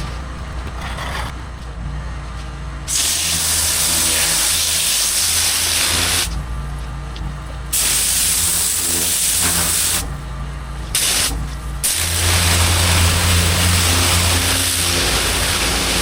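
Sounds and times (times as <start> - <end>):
washer motor humming: 0.0 - 1.9, 11.8 - 16.0
pressure washer spraying hiss: 2.9 - 6.3, 7.8 - 10.0, 11.0 - 16.0.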